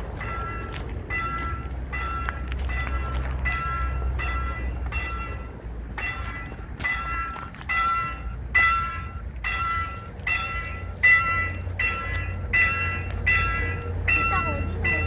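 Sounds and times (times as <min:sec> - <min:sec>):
low rumble: 0:00.0 - 0:15.0
level crossing bell ringing: 0:00.2 - 0:15.0.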